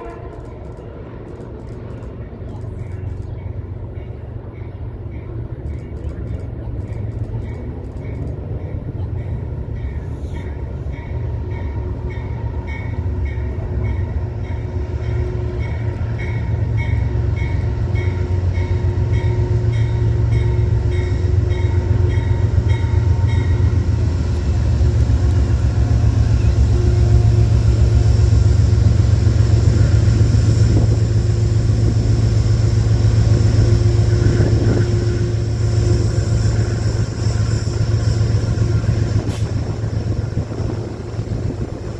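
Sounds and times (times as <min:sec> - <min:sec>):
train rumbling: 0:00.0 - 0:41.9
high-pitched clicking: 0:05.6 - 0:08.8.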